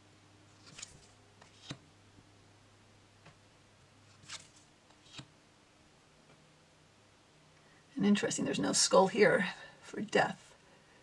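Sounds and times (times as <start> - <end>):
cards tapping and sliding: 0.6 - 1.8, 4.1 - 5.3.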